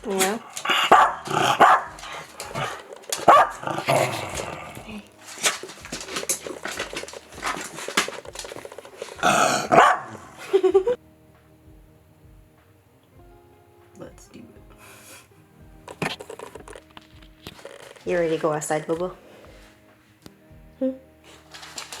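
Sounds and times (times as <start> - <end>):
dog barking: 0.0 - 5.0, 9.2 - 10.5.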